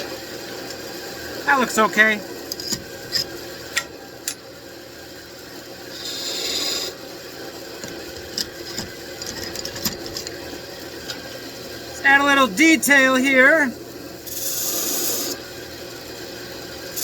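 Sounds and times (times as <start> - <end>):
tool scraping spinning wood: 5.9 - 7.0
wood lathe motor hum: 5.9 - 7.0.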